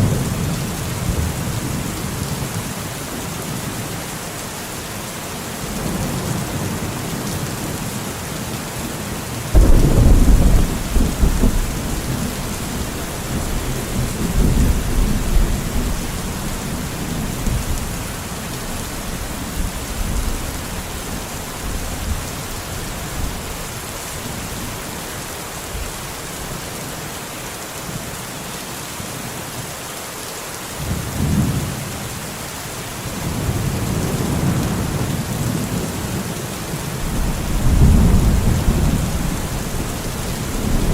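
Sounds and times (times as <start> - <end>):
heavy rain falling: 0.0 - 40.9
thunder rumbling: 9.5 - 22.3, 37.0 - 40.9.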